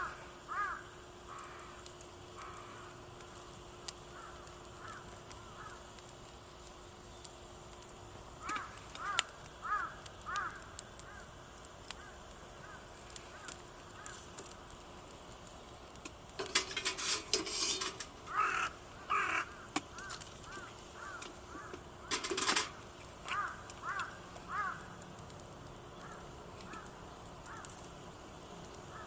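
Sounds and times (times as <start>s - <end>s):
crows cawing: 0.0s - 3.0s, 4.1s - 6.0s, 8.4s - 14.4s, 17.7s - 25.0s, 26.0s - 27.9s
camp gear rustling and clattering: 16.4s - 18.3s, 22.1s - 22.8s.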